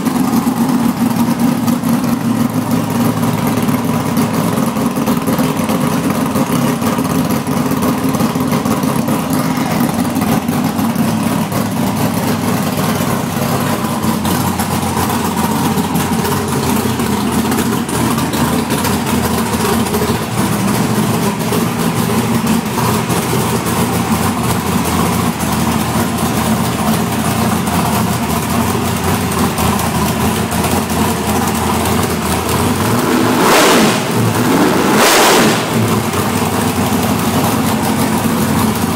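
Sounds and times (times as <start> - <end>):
car engine running and revving: 0.0 - 38.9.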